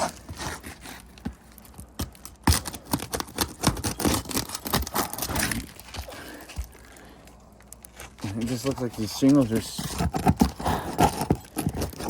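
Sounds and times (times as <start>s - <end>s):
roof shingle scraping and tearing: 2.1s - 6.7s, 7.9s - 12.0s.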